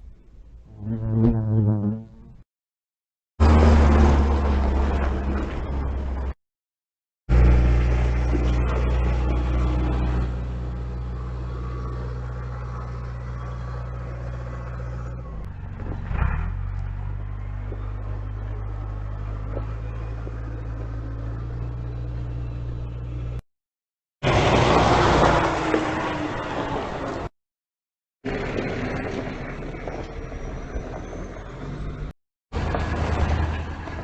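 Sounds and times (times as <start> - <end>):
diesel truck engine running: 7.3 - 23.4, 28.3 - 34.0.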